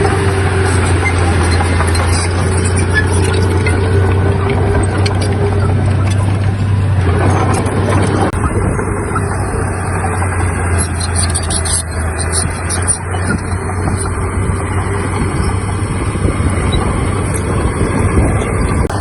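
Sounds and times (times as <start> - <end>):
heavy diesel machinery running: 0.0 - 19.0.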